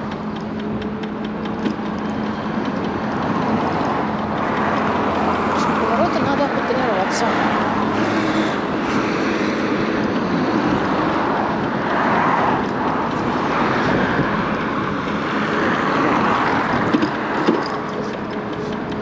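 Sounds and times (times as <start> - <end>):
wind and scooter road noise: 0.0 - 19.0
person speaking: 5.5 - 7.5.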